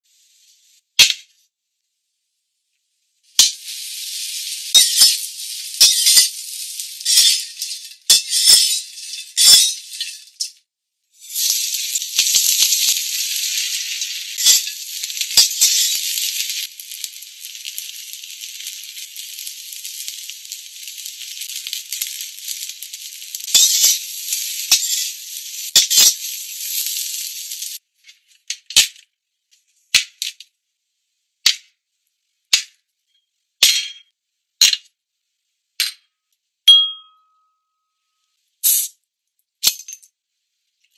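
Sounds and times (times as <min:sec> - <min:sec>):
food frying in oil: 0:03.2 - 0:27.8.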